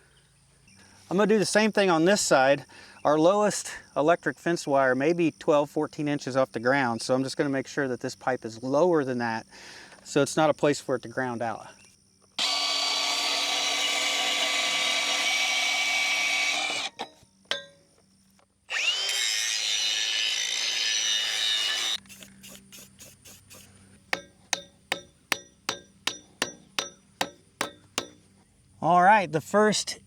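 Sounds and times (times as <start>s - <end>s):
angle grinder cutting metal pipe: 12.4s - 17.7s, 18.7s - 28.2s
light metallic taps: 24.2s - 28.2s.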